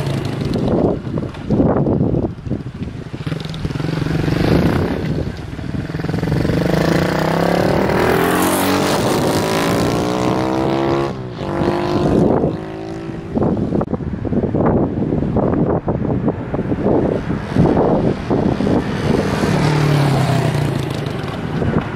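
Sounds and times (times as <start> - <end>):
minibike engine revving: 0.0 - 1.0, 3.1 - 13.1.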